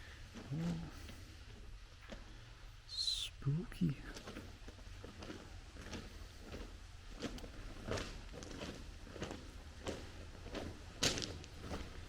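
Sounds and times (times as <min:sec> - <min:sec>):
footsteps walking: 0:04.2 - 0:12.0.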